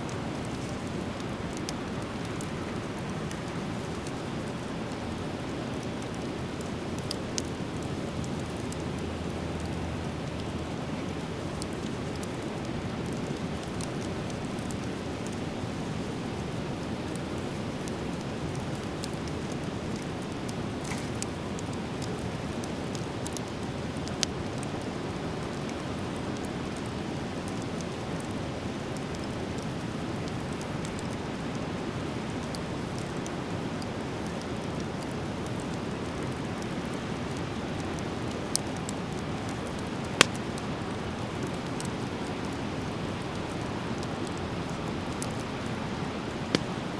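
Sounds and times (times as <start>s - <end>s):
wood popping: 46.4s - 46.9s.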